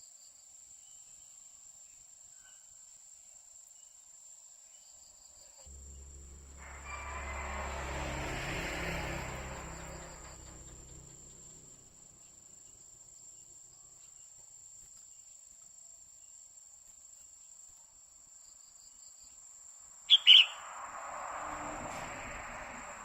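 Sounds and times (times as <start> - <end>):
rushing noise: 5.7 - 11.9
bird sharp loud calls: 20.1 - 20.7.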